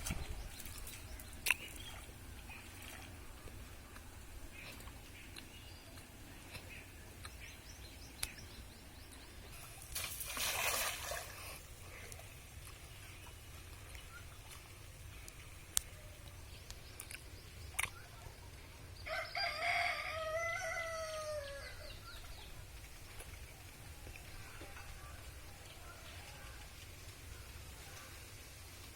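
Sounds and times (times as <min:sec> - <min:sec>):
rooster crowing: 0:19.1 - 0:21.9.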